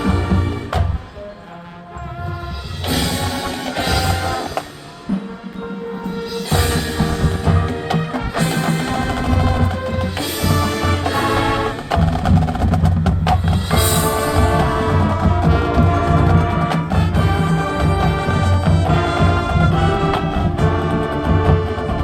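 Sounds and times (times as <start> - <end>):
marching band playing: 0.0 - 22.0
sharp percussion strikes: 2.7 - 21.1.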